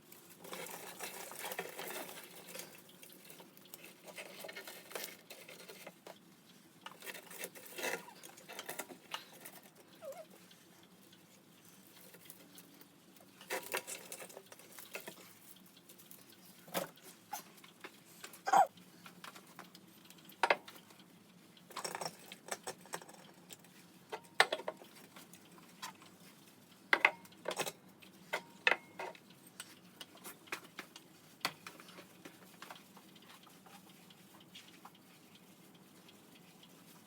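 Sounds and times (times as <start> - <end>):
small objects clicking and tapping: 19.0 - 21.0, 21.7 - 26.2, 26.9 - 35.1.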